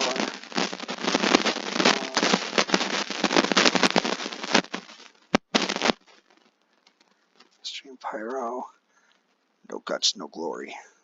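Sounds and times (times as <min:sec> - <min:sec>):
fireworks bangs: 0:00.0 - 0:06.1
fireworks crackling: 0:00.0 - 0:08.6.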